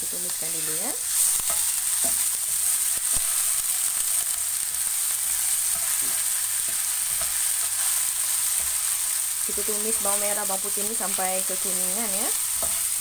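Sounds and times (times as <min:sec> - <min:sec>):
shallots and garlic sizzling in oil: 0:00.0 - 0:13.0
spatula scraping and tapping pan: 0:01.2 - 0:04.5, 0:05.3 - 0:08.9, 0:12.5 - 0:13.0.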